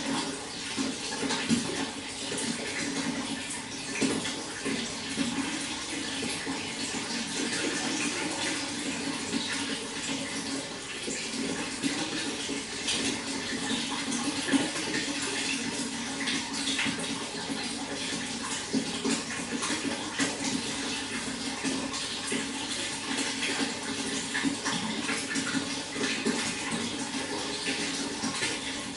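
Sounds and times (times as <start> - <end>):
running water splashing: 0.0 - 28.9.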